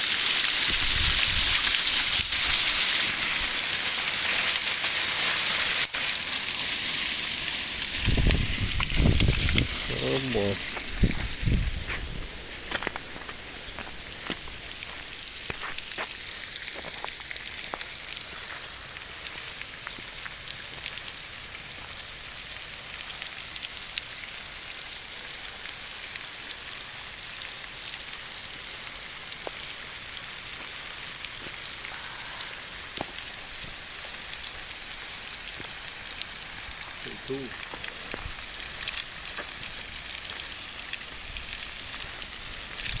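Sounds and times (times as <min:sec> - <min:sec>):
waterfall splashing into pool: 0:00.0 - 0:11.6, 0:12.5 - 0:43.0
water drips and splashes: 0:00.0 - 0:43.0.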